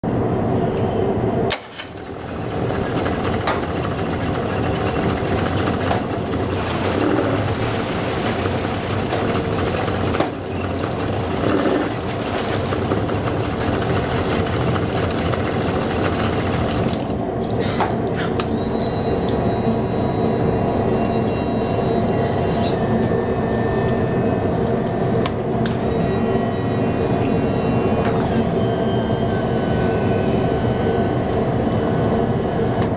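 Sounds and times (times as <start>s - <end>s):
outboard motor running: 2.0s - 17.3s.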